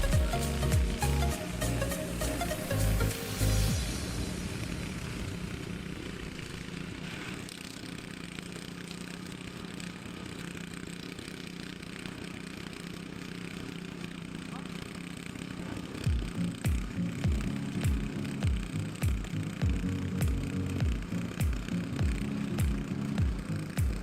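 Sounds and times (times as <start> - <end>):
engine running steadily: 0.0 - 24.0
low thumps: 16.1 - 24.0.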